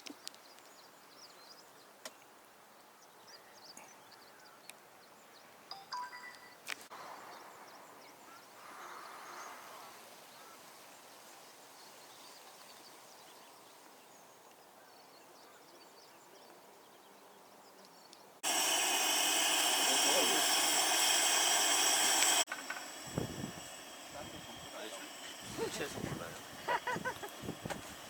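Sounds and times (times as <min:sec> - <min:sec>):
loud steady hissing: 0:18.4 - 0:28.0.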